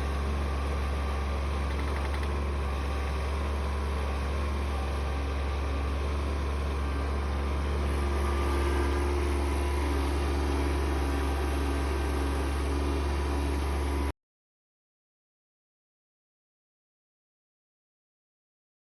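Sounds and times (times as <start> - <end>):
tractor diesel engine humming: 0.0 - 14.1.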